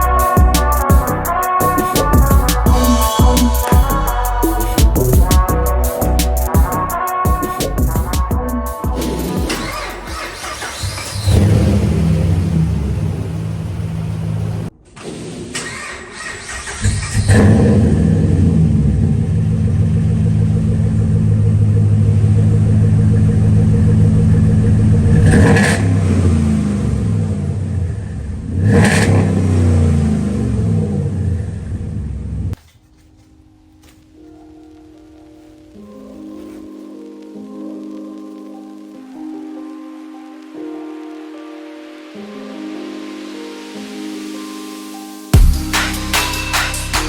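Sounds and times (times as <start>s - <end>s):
truck engine running and revving: 8.9s - 14.7s, 16.8s - 32.5s.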